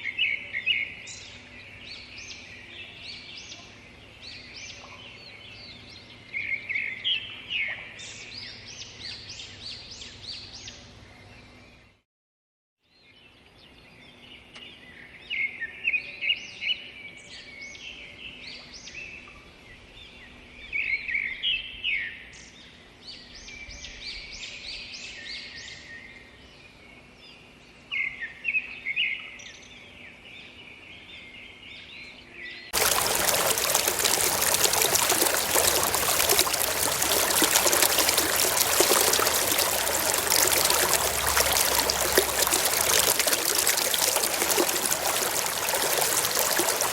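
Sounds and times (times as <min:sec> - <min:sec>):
birds chirping: 0:32.8 - 0:46.9
rush of running water: 0:32.8 - 0:46.9.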